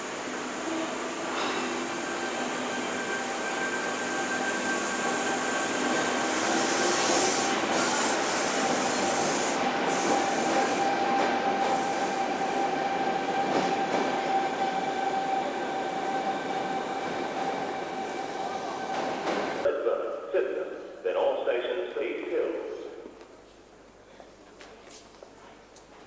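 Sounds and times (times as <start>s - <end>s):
electric train rumbling: 0.0s - 19.7s
train whining tone: 0.0s - 23.1s.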